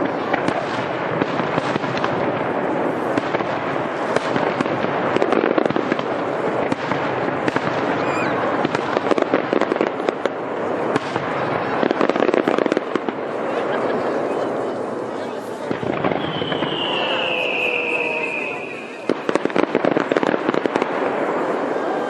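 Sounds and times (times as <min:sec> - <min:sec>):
fireworks crackling and popping: 0:00.0 - 0:22.0
falling firework whistle: 0:07.9 - 0:08.4, 0:16.0 - 0:19.6.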